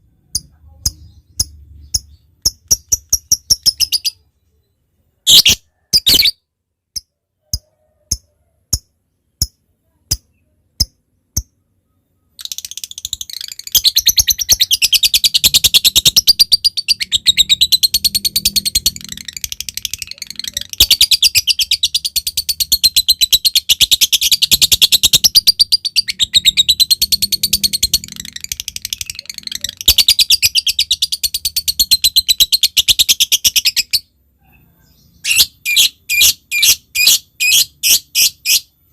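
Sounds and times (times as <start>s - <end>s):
lovebird rapid high chatter: 12.4s - 34.0s.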